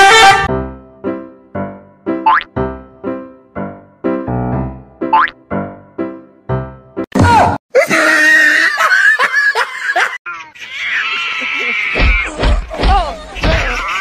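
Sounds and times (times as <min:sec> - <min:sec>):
music: 0:00.0 - 0:07.1.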